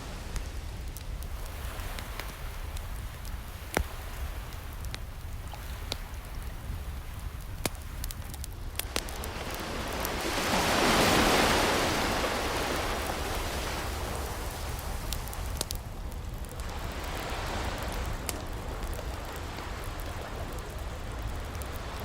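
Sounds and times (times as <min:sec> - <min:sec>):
ocean wave breaking: 0:00.0 - 0:08.1, 0:08.9 - 0:15.6
wood fire crackling: 0:00.0 - 0:22.0.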